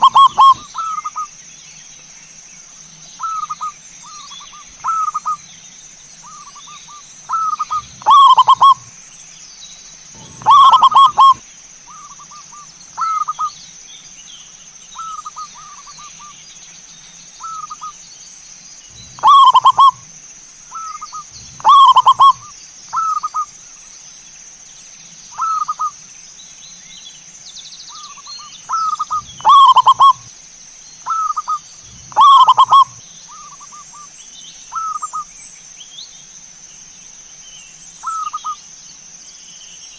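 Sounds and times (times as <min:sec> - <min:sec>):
doves cooing loudly: 0:00.0 - 0:01.2, 0:07.3 - 0:08.9, 0:10.2 - 0:12.1, 0:18.9 - 0:20.1, 0:20.8 - 0:23.4, 0:28.7 - 0:30.3, 0:31.1 - 0:33.5
softer bird coos: 0:00.0 - 0:01.3, 0:03.2 - 0:05.4, 0:06.2 - 0:08.9, 0:10.1 - 0:13.5, 0:18.9 - 0:20.1, 0:20.7 - 0:23.5, 0:25.4 - 0:25.9, 0:27.9 - 0:30.3, 0:31.1 - 0:34.1.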